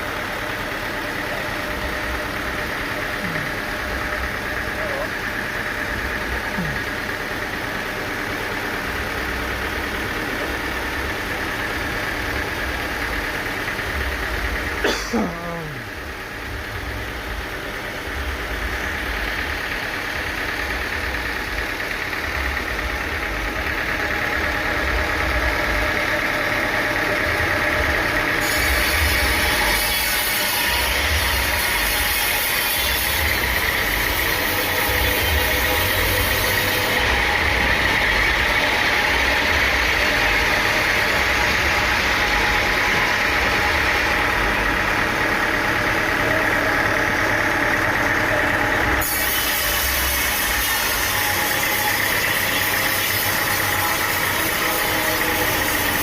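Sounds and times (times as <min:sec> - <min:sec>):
sawmill engine running: 0:00.0 - 0:56.0
hiss: 0:28.4 - 0:37.1, 0:49.0 - 0:56.0.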